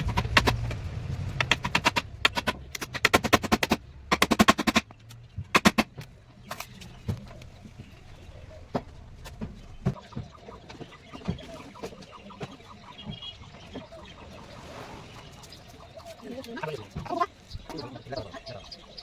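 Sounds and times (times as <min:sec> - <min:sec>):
sharp tapping on wood: 0:01.4 - 0:07.3.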